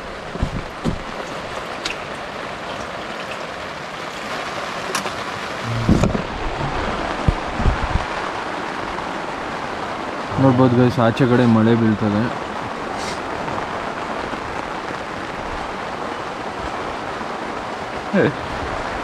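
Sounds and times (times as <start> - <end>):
low thumps: 0.0 - 1.4, 5.6 - 8.2
heavy rain falling: 0.0 - 19.0.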